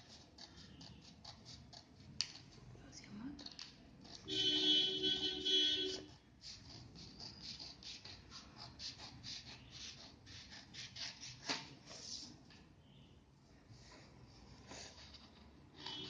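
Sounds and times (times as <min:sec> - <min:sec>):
scissors snipping paper: 0:00.0 - 0:02.6, 0:05.9 - 0:11.8.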